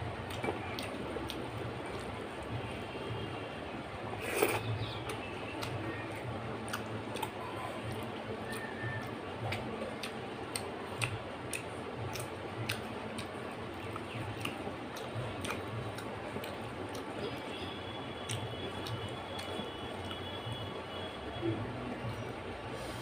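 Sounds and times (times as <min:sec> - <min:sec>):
chewing clicks: 0:00.2 - 0:02.1, 0:04.3 - 0:20.5.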